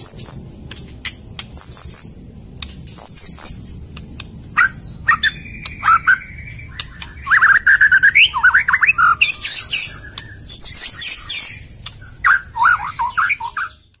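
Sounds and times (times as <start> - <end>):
songbird whistling: 2.9 - 13.9
bird chattering notes: 3.0 - 13.8.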